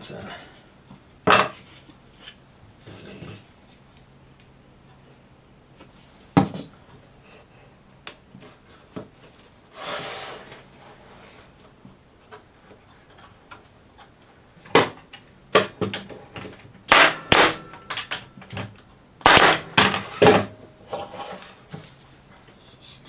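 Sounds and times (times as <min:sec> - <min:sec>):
staple gun shots into wood: 0:16.9 - 0:18.1, 0:19.2 - 0:20.4.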